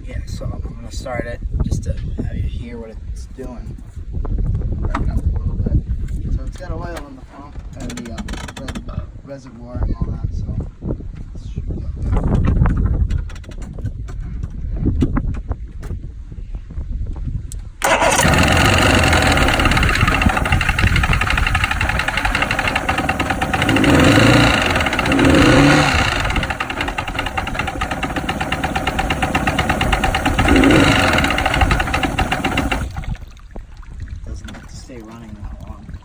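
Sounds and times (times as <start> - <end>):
outboard engine knocking: 17.8 - 33.3.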